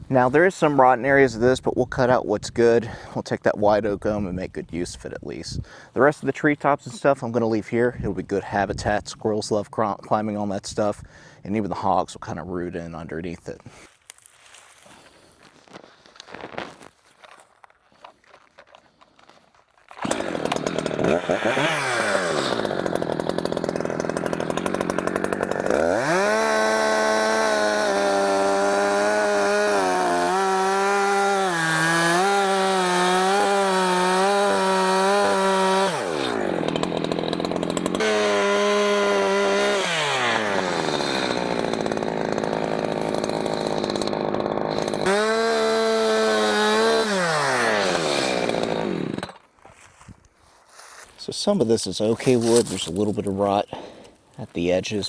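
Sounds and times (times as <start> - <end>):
chainsaw cutting wood: 19.8 - 49.6, 52.2 - 54.3.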